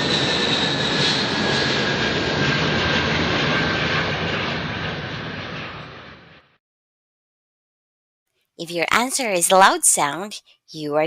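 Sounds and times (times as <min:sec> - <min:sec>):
airplane engine whine: 0:00.0 - 0:06.6.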